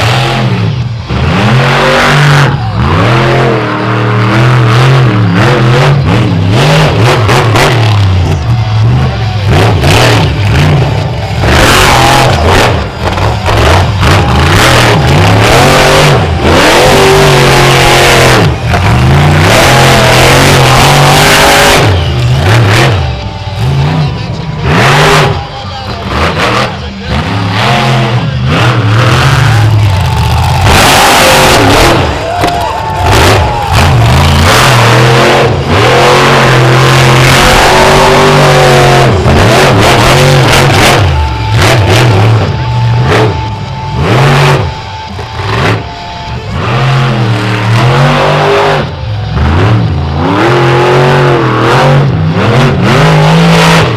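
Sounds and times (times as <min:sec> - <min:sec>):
monster truck engine revving: 0:00.0 - 0:53.9.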